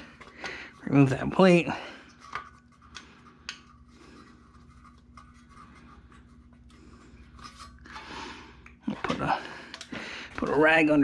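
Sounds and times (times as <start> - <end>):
scraping and rubbing of parts: 0.0 - 8.1
faint steady hum: 0.0 - 11.0.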